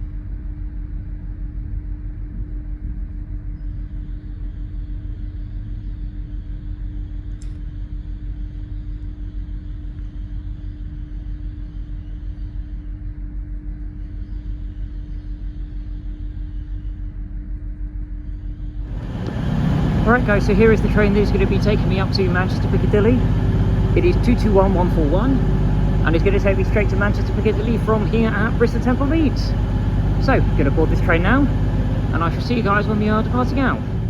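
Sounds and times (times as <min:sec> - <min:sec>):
constant hum: 0:00.0 - 0:34.0
train rumbling: 0:18.8 - 0:34.0.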